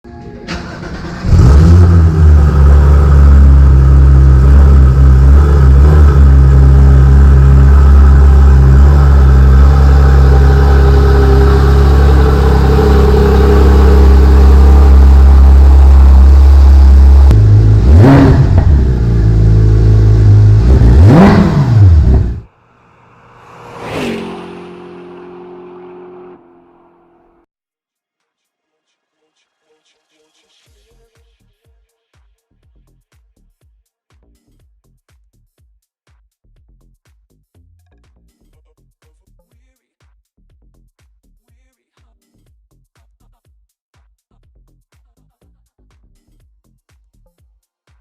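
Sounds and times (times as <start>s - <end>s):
car engine starting and idling: 0.2s - 27.5s
engine revving: 0.5s - 27.5s.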